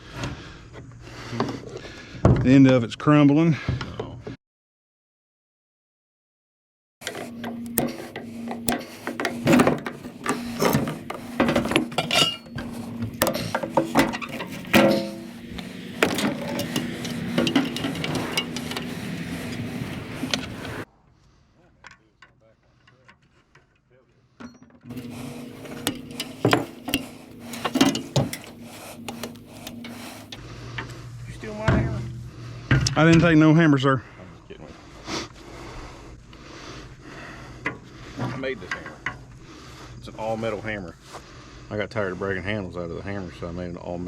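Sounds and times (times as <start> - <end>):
hand tools clinking on scrap metal: 7.0 - 20.8, 24.9 - 30.4
steady low hum: 7.0 - 20.8, 24.9 - 33.0.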